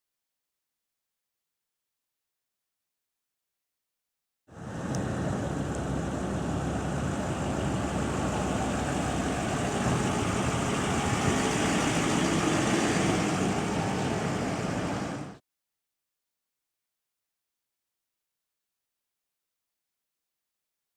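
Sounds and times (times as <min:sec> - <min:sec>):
truck engine running: 0:04.6 - 0:15.4.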